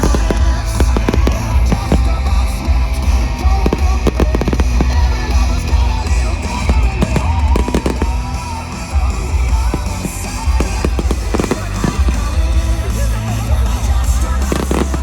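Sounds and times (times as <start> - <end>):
fireworks bangs and crackles: 0.0 - 15.0
music with heavy bass: 0.0 - 15.0.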